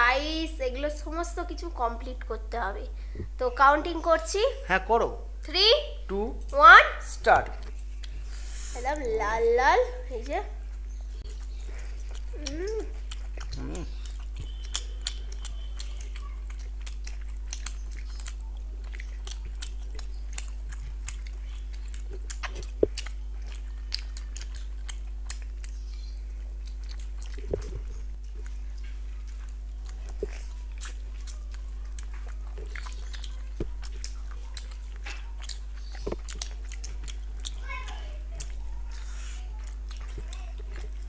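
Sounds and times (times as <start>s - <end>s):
low electrical hum: 0.0s - 41.0s
wet chewing mouth clicks: 7.5s - 8.3s, 10.2s - 41.0s.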